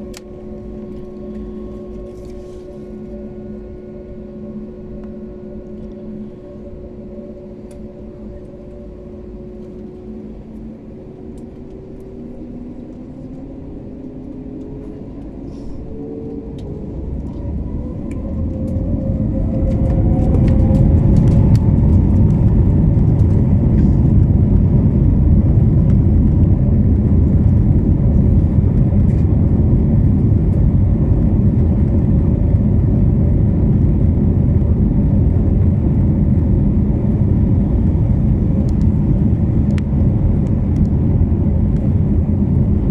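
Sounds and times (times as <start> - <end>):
jet engines spooling up: 7.5 - 42.9
loud steady engine rumble: 10.1 - 42.9.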